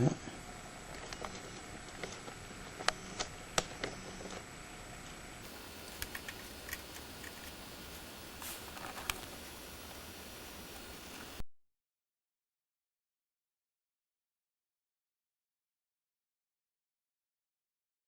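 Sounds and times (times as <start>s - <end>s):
steady hiss: 5.4s - 11.4s.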